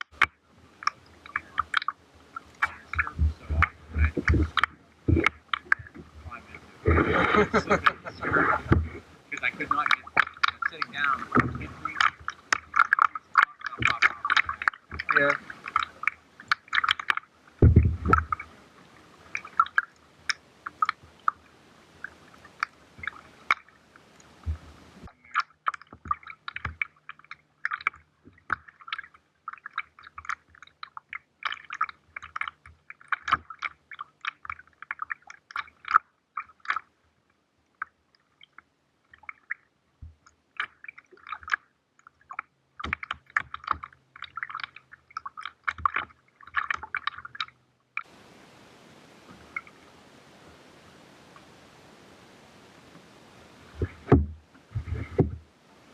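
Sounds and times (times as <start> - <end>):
paddle splashing water: 0.0 - 55.9
low thump: 17.6 - 18.3, 53.8 - 55.4.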